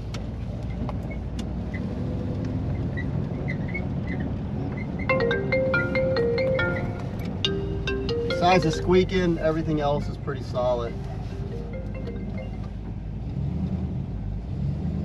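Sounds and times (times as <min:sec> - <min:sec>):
car engine and road rumble: 0:00.0 - 0:15.0
marimba-like background music: 0:05.1 - 0:10.0, 0:10.6 - 0:12.9.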